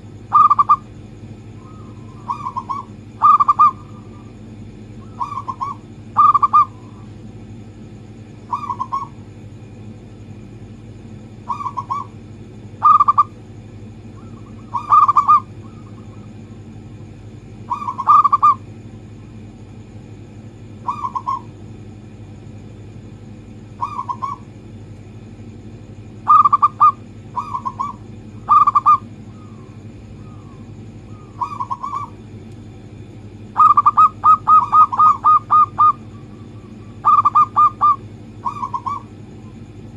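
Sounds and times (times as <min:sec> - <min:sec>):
dove cooing: 0:00.0 - 0:00.9, 0:01.5 - 0:04.4, 0:05.0 - 0:07.1, 0:08.4 - 0:09.2, 0:11.4 - 0:12.2, 0:12.8 - 0:13.4, 0:14.1 - 0:16.5, 0:17.6 - 0:18.7, 0:20.8 - 0:21.6, 0:23.7 - 0:24.5, 0:26.2 - 0:32.2, 0:33.5 - 0:39.6.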